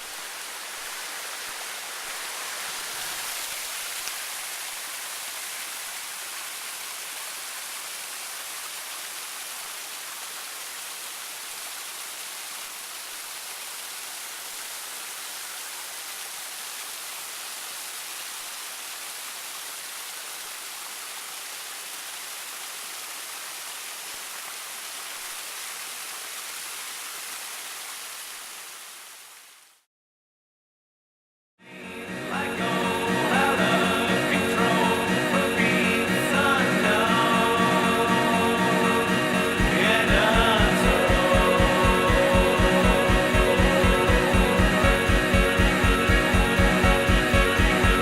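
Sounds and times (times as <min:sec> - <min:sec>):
waterfall rushing over rock: 0:00.0 - 0:29.6, 0:32.2 - 0:48.0.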